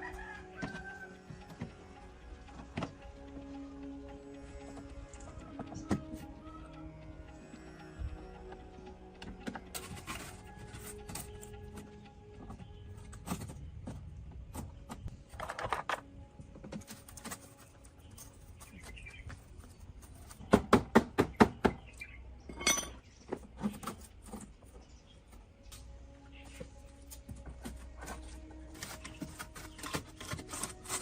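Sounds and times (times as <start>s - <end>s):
metal parts clinking and knocking: 13.0s - 16.1s, 22.5s - 24.5s.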